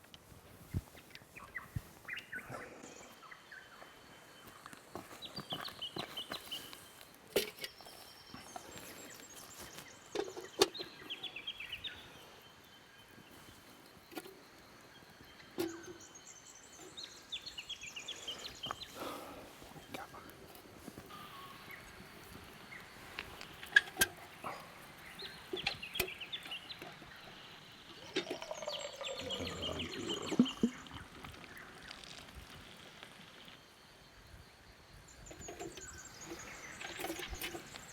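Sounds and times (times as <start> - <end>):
birds chirping and clucking: 16.8 - 32.1
high bird chirps: 25.2 - 32.1.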